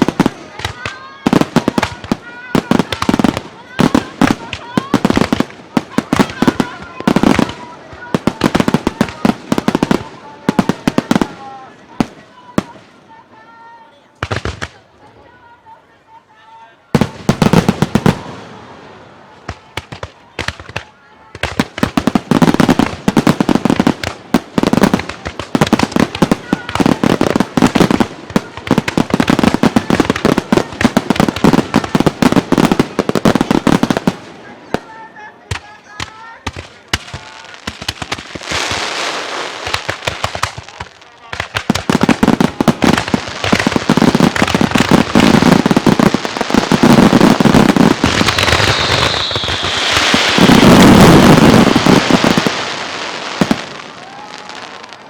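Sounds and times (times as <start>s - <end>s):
fireworks booming: 0.0s - 13.1s, 14.2s - 14.9s, 16.9s - 34.9s, 35.5s - 55.0s
fireworks cracking: 0.0s - 15.8s, 16.9s - 55.0s
fireworks shell bursts: 48.0s - 51.0s
falling firework whistle: 48.0s - 52.8s.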